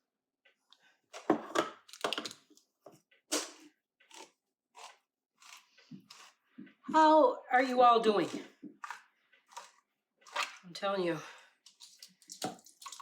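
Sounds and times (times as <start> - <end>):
metal can scraping and cracking: 11.7 - 13.0.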